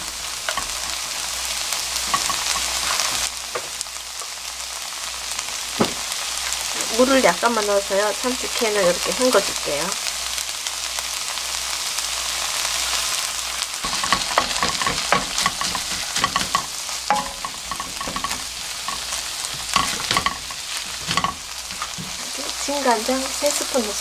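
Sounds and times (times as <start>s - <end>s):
onions and tuna sizzling in a wok: 0.0s - 24.0s
wooden spatula knocking and scraping pan: 2.0s - 3.7s, 13.8s - 22.3s.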